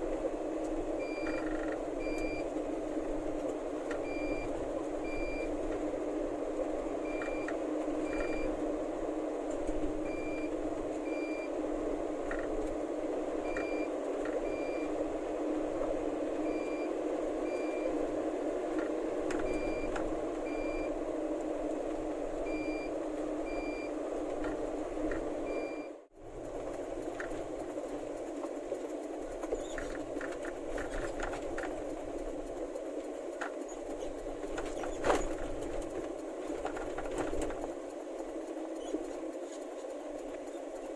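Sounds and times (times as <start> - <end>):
truck reversing alarm beeps: 1.0 - 2.6, 4.0 - 5.6, 7.0 - 8.6, 10.0 - 11.6, 13.4 - 15.0, 16.4 - 18.0, 19.4 - 21.0, 22.4 - 24.0, 25.4 - 26.0.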